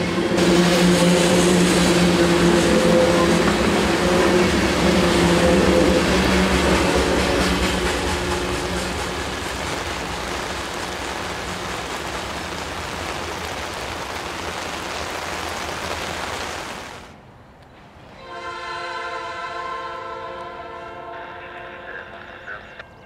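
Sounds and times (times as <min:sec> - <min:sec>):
locomotive air horn chord: 0:00.0 - 0:07.2, 0:18.2 - 0:22.7
freight cars rolling by: 0:00.0 - 0:18.3.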